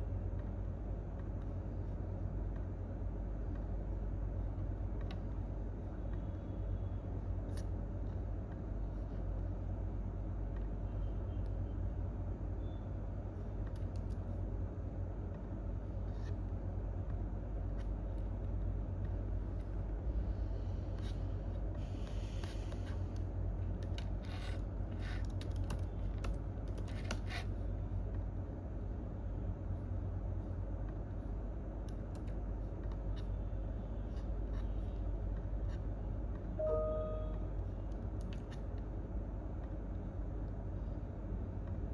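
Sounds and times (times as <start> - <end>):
low room rumble: 0.0 - 41.9
keyboard and mouse clicks: 13.6 - 14.3, 22.4 - 27.5, 31.8 - 33.2.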